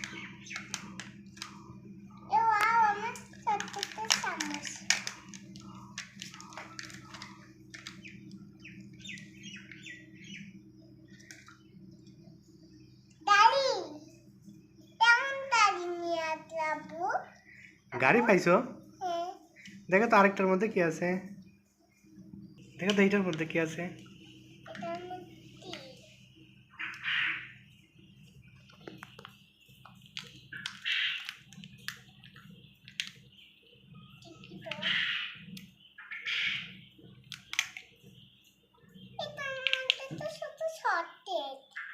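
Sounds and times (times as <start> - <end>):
plastic capsule clicks: 0.0 - 1.6, 2.6 - 8.1, 32.8 - 33.2, 37.3 - 37.9, 39.6 - 40.0
high bird chirps: 0.0 - 3.6, 5.1 - 15.8, 21.3 - 41.9
steady low hum: 0.0 - 40.8
wrapper rustling: 3.2 - 8.0.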